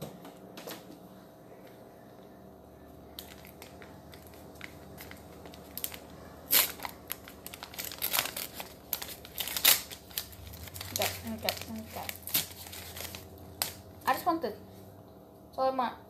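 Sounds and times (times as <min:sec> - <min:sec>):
paper wrapper crinkling and tearing: 0:03.2 - 0:13.9.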